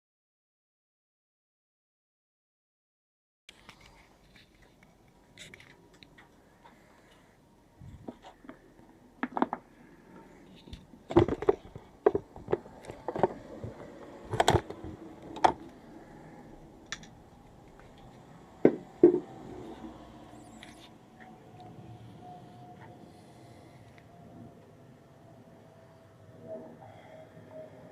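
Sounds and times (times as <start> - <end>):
knocks and clicks of tools: 10.7 - 15.8, 16.8 - 19.5.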